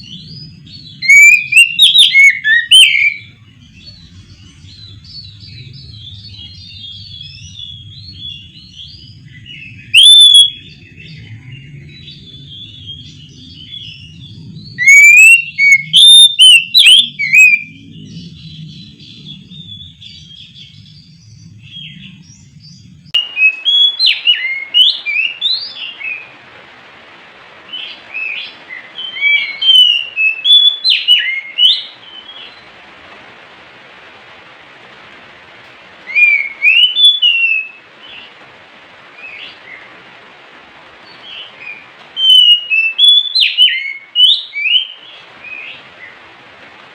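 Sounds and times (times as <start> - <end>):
magpie-robin singing whistles: 0.0 - 3.9, 4.8 - 11.2, 11.9 - 17.8, 23.2 - 26.3, 27.7 - 32.6, 36.1 - 37.8, 41.3 - 45.7.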